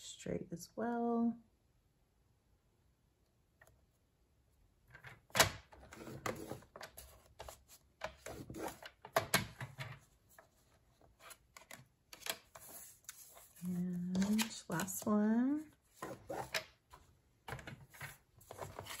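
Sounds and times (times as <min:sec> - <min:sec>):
paper rustling: 0:10.3 - 0:15.2, 0:17.8 - 0:19.0.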